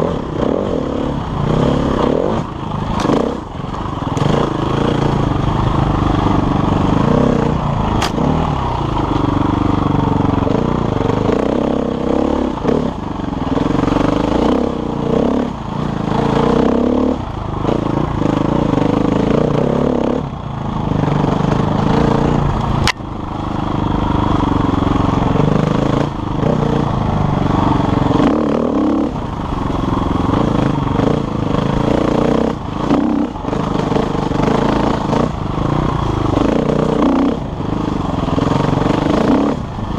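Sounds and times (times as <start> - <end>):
motorcycle engine revving: 0.0 - 39.9
sharp clicks: 8.0 - 8.2.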